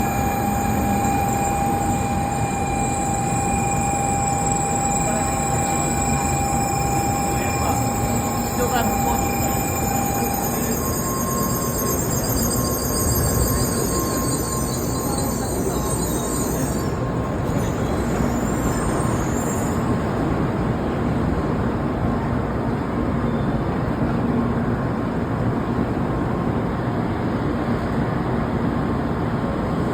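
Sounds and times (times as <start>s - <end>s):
high-pitched whine: 0.0s - 20.4s
train rumbling: 0.0s - 29.9s.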